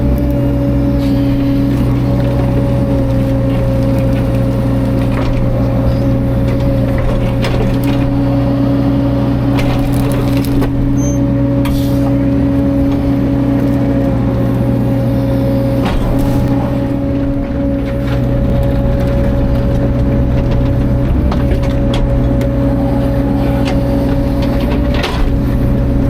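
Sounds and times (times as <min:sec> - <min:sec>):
excavator diesel engine: 0:00.0 - 0:26.0
wood cracking and crunching: 0:00.0 - 0:26.0.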